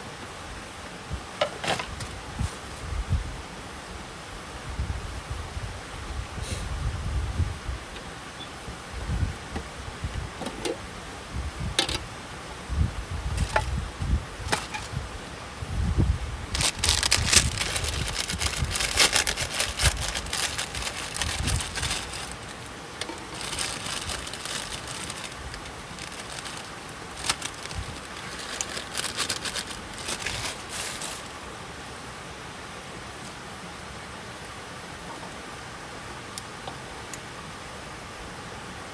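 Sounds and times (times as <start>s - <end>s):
wood crackling and snapping: 16.6s - 31.3s.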